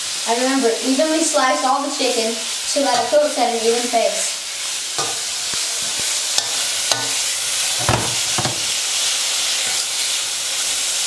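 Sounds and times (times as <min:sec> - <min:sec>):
chicken sizzling in oil: 0:00.0 - 0:11.0
knocks: 0:07.8 - 0:08.7.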